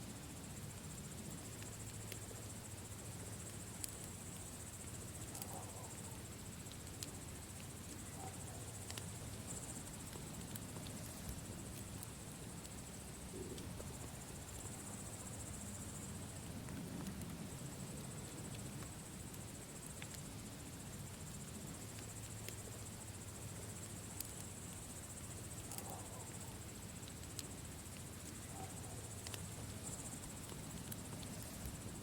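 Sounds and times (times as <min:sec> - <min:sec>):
campfire crackling: 0:00.0 - 0:32.0
crickets chirring: 0:00.0 - 0:32.0
fire pops: 0:16.3 - 0:17.6.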